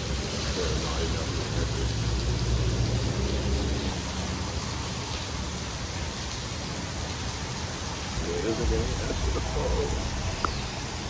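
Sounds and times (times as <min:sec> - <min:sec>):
rain hiss: 0:00.0 - 0:11.0
low vehicle hum: 0:00.1 - 0:04.7, 0:07.8 - 0:11.0.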